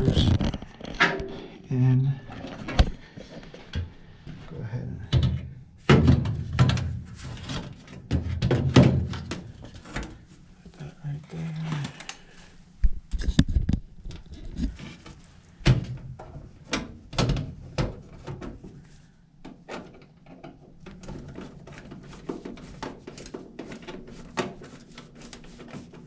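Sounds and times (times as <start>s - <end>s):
sheet-metal door knocks and bangs: 5.2s - 7.0s, 8.1s - 9.3s.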